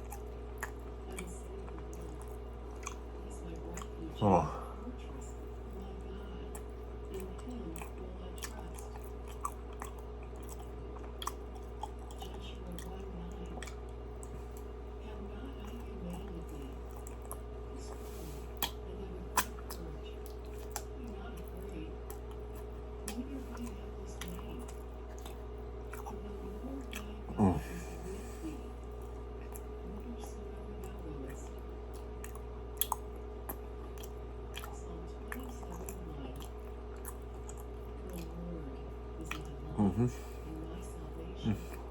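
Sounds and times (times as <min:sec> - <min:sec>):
chewing and mouth smacking: 0:00.0 - 0:04.2, 0:04.8 - 0:41.9
steady low hum: 0:00.0 - 0:41.9
wet mouth clicks: 0:18.6 - 0:18.8, 0:19.4 - 0:20.9, 0:31.9 - 0:34.7.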